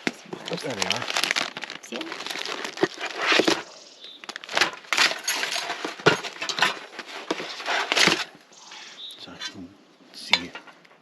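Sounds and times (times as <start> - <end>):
utensils clinking and rattling: 4.4 - 8.3.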